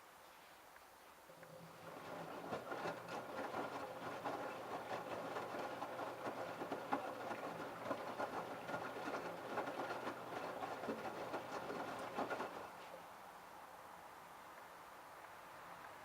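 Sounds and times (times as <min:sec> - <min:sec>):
washing machine running: 0:01.5 - 0:12.9
clothes and water clattering: 0:01.6 - 0:13.0.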